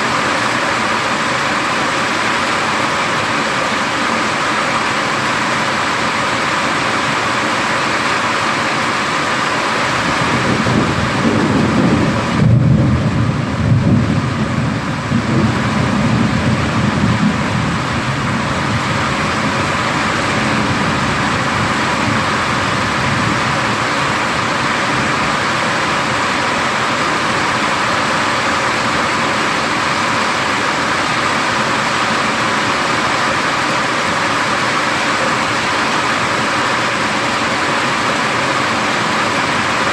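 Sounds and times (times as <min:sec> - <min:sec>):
heavy rain: 0:00.0 - 0:39.9
thunder rumbling: 0:10.0 - 0:26.6.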